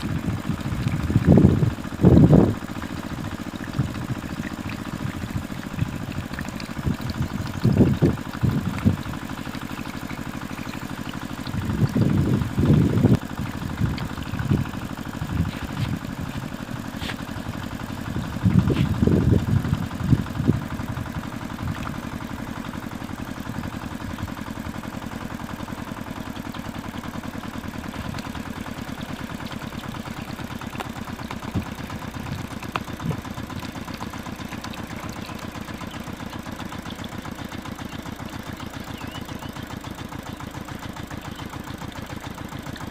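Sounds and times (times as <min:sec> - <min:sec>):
small motor running: 0:00.0 - 0:42.9.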